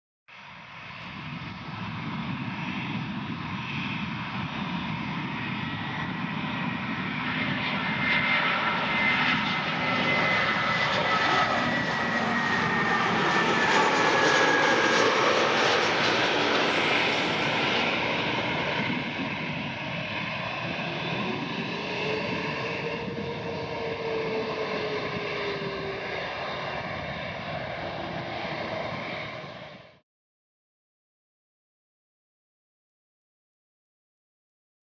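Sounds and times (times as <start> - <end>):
jet plane passing: 0.4 - 30.0
high fan whine: 20.4 - 27.4.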